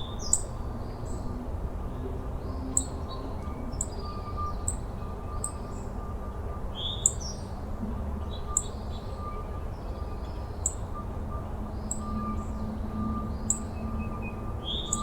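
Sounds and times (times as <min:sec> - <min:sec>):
bird chirping: 0:11.8 - 0:15.0.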